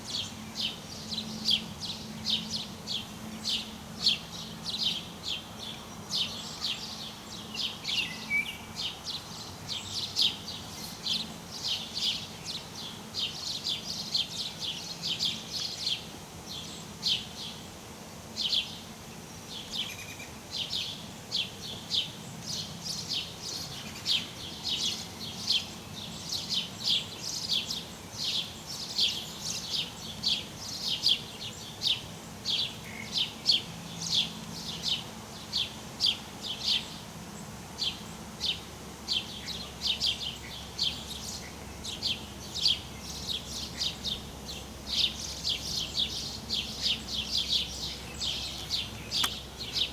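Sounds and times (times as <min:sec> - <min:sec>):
birds chirping: 0:37.8 - 0:49.9.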